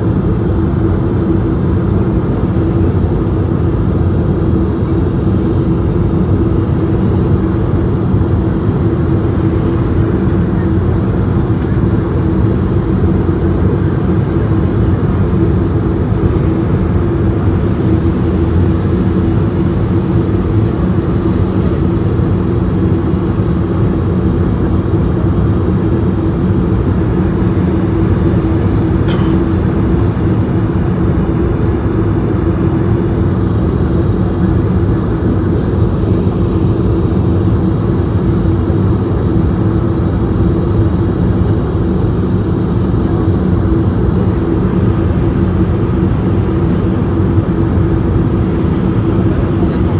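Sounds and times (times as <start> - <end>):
airplane cabin engine drone: 0.0 - 49.9.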